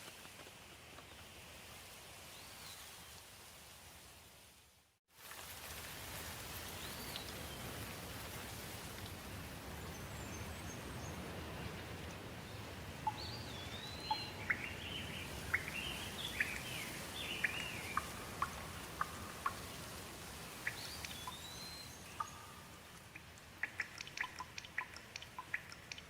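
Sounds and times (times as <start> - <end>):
steady rain: 0.8 - 26.0
dripping ticks: 22.2 - 26.0.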